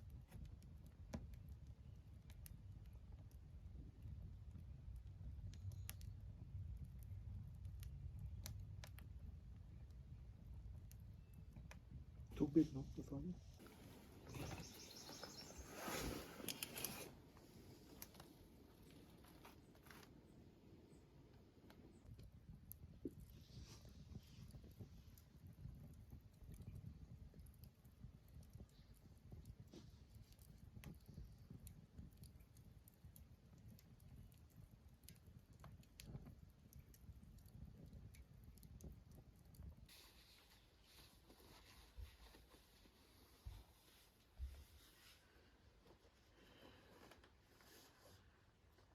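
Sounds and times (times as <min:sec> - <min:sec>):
brief rustle: 0:13.6 - 0:18.4.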